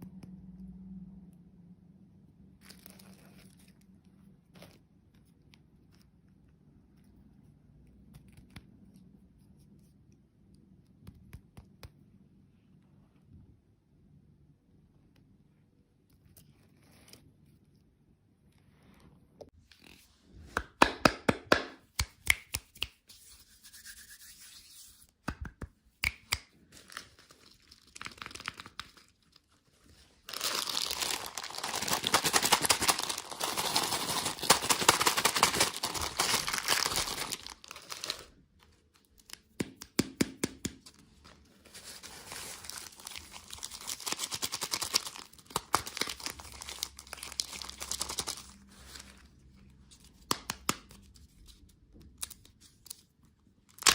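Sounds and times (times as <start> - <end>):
packaging crinkling and tearing: 26.6 - 39.6, 40.9 - 49.3.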